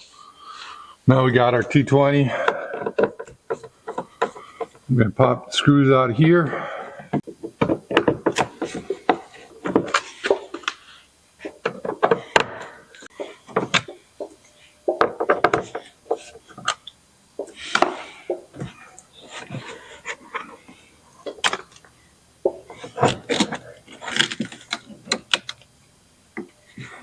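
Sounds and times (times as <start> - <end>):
hard plastic knocking: 2.4 - 4.8, 7.1 - 10.6, 11.6 - 16.7.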